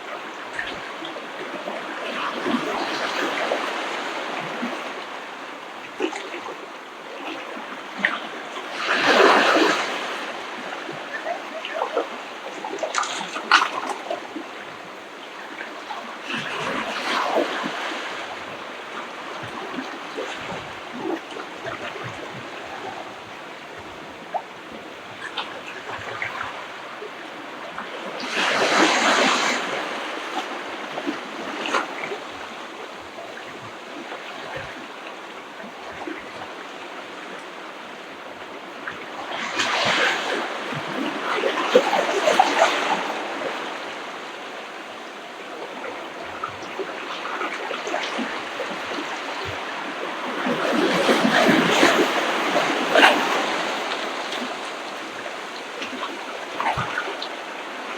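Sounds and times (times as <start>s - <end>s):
ocean surf breaking: 0.0s - 57.9s.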